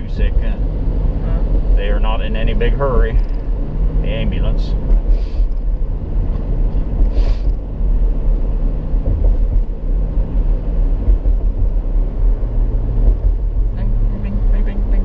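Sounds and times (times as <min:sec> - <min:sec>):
car engine and road rumble: 0:00.0 - 0:15.0
brief hiss: 0:07.1 - 0:07.5.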